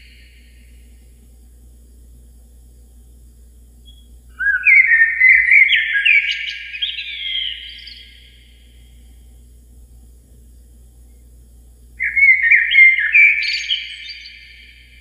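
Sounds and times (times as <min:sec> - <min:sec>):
songbird whistling: 0:03.9 - 0:08.4, 0:12.0 - 0:14.9.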